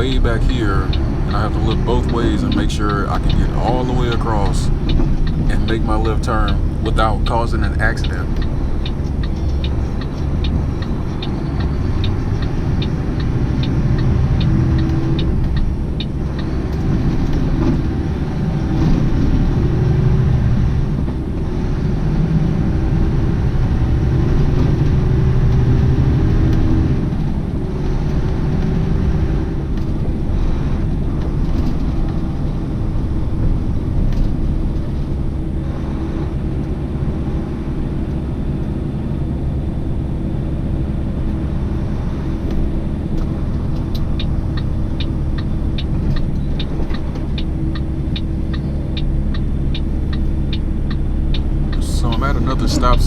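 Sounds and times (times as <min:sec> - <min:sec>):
truck engine accelerating: 0:00.0 - 0:15.6, 0:41.3 - 0:53.0.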